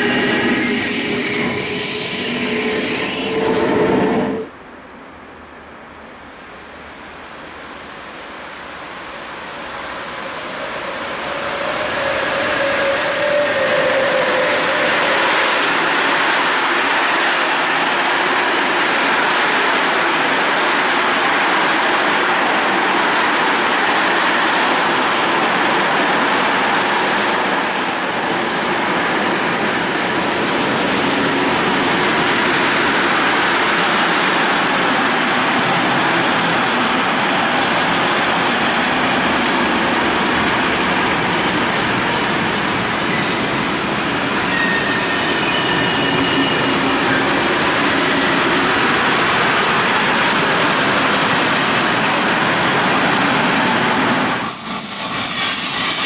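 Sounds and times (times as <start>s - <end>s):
high-pitched squeal: 0.0s - 4.5s, 10.1s - 16.0s, 40.1s - 48.6s, 53.8s - 56.0s
train wheels rumbling on rails: 8.6s - 56.0s.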